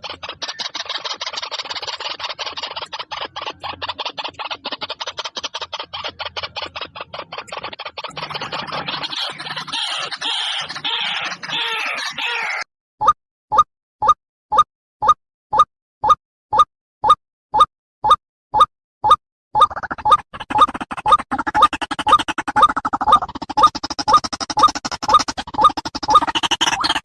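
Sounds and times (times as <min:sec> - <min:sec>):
waterhen harsh chatter and croaks: 0:00.0 - 0:12.6.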